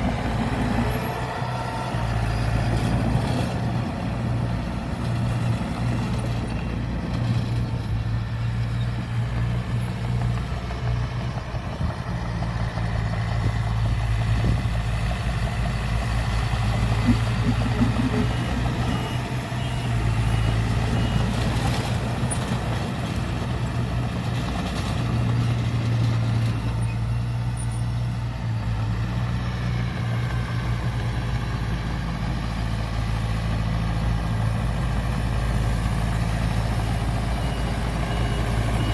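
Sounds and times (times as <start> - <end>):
heavy diesel machinery running: 0.0 - 38.9
faint high beeps: 37.4 - 38.9.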